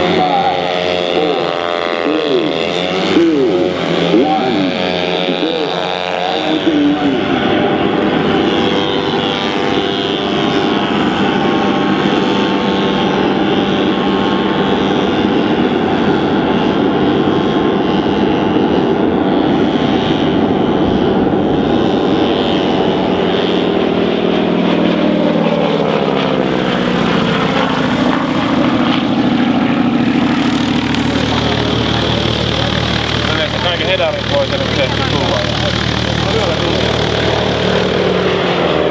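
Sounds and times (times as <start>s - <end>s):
model aeroplane propeller engine: 0.0s - 38.9s.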